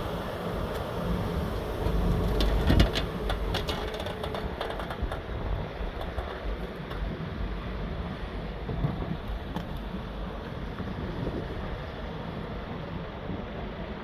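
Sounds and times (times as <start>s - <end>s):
diesel engine running: 0.0s - 5.5s.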